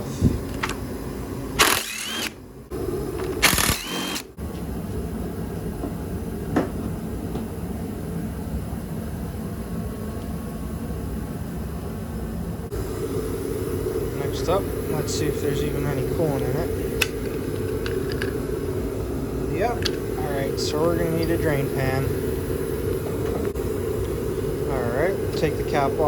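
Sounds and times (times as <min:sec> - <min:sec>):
steady low hum: 0:00.0 - 0:26.0
power tool whining: 0:01.5 - 0:02.5, 0:03.1 - 0:04.4.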